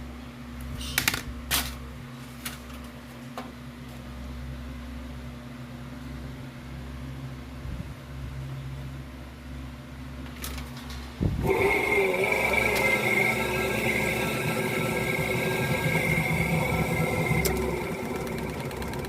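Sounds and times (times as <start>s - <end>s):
low machine hum: 11.0s - 19.0s
machine running with high whine: 11.4s - 19.0s.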